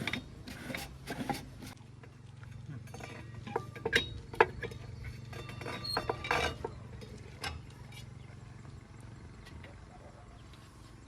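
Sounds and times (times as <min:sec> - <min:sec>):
metallic clanks and rattles: 0:02.5 - 0:08.2.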